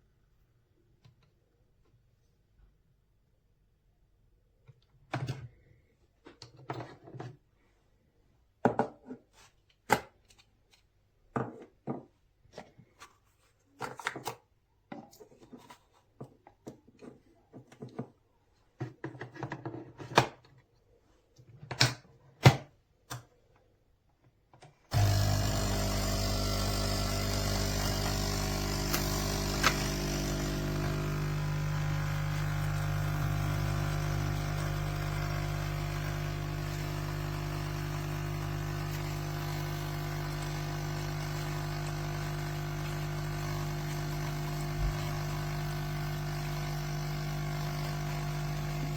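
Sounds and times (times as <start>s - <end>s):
coffee machine pump humming: 24.9s - 48.9s.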